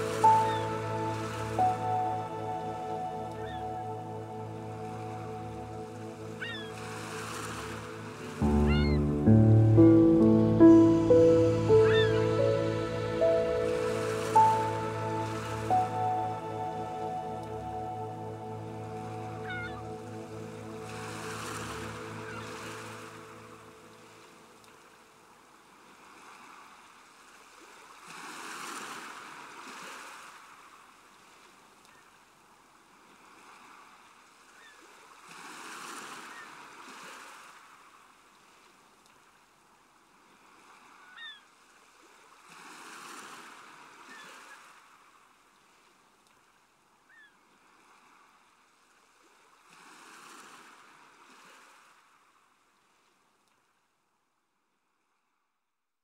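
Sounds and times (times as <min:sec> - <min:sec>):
ocean waves washing in: 0:00.0 - 0:31.8, 0:32.6 - 0:38.9, 0:40.0 - 0:45.9, 0:47.6 - 0:52.6
high chirps: 0:08.4 - 0:23.5.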